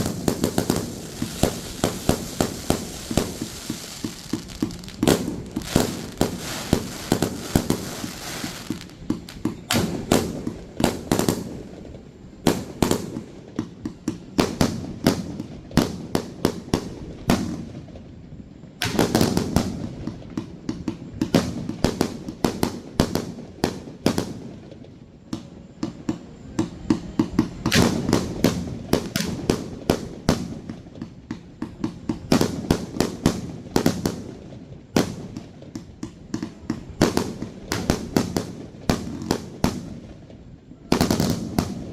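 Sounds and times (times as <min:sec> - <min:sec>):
fireworks bangs: 0:00.0 - 0:11.6
fireworks crackling: 0:00.0 - 0:11.6.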